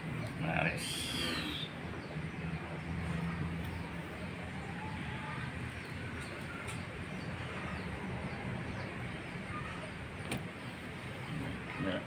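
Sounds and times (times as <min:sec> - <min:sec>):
faint bird chirps: 0:00.8 - 0:02.2.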